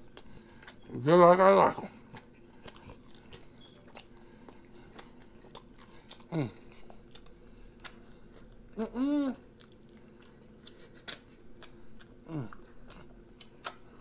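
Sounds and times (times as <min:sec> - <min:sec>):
wet chewing and mouth clicks: 0:00.0 - 0:00.9, 0:01.9 - 0:08.8, 0:09.4 - 0:14.0
person humming mmm: 0:06.2 - 0:06.7, 0:08.7 - 0:09.5, 0:12.2 - 0:13.8.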